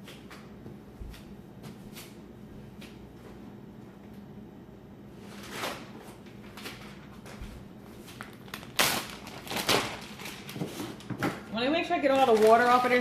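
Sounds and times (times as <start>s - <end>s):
paper towels rustling and patting: 12.0s - 13.0s.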